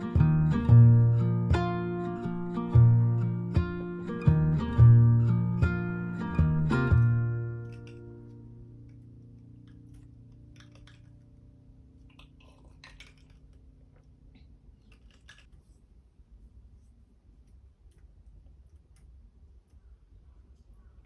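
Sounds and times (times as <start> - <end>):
acoustic guitar chord ringing: 0.0 - 9.6
faint clicks and taps: 6.9 - 11.3.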